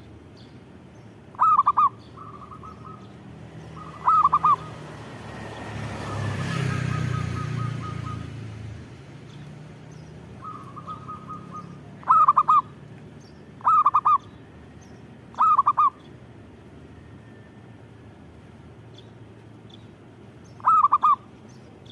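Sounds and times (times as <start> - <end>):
dove cooing: 1.3 - 4.9, 10.4 - 12.8, 13.6 - 14.3, 15.3 - 16.0, 20.6 - 21.3.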